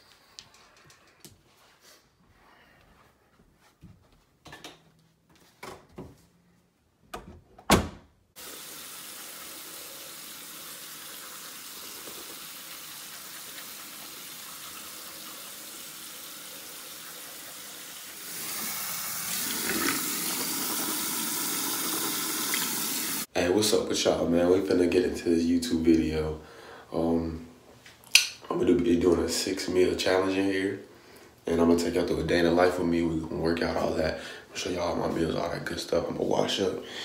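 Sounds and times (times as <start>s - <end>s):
sink tap running: 8.4s - 23.3s.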